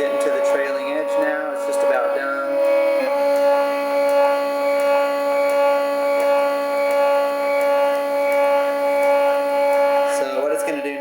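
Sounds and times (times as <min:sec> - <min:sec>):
stepper motors whining: 0:00.0 - 0:11.0.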